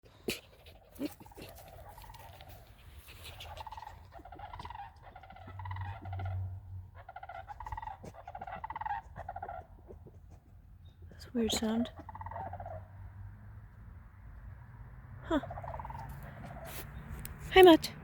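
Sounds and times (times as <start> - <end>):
bird rattling pulsed calls: 3.2 - 6.4.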